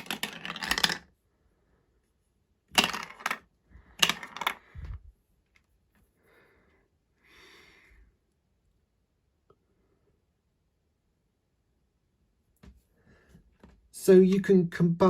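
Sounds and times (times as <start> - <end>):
marbles rattling on plastic track: 0.0 - 1.1, 2.7 - 4.9.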